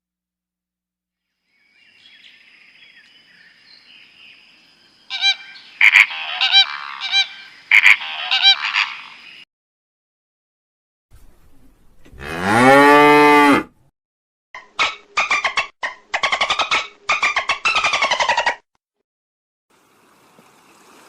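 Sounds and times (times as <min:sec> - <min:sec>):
bird calling: 0:05.0 - 0:09.4.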